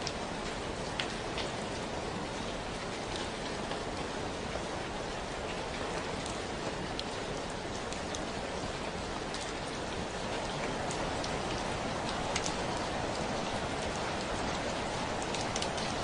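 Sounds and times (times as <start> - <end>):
steady rain falling: 0.0 - 16.0
raindrops ticking: 5.5 - 16.0.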